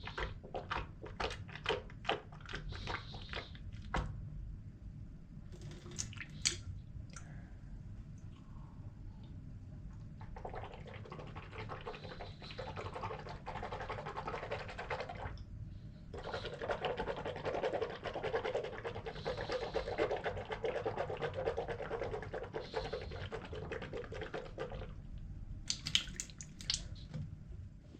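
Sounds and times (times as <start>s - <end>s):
person gargling water: 10.2s - 14.4s.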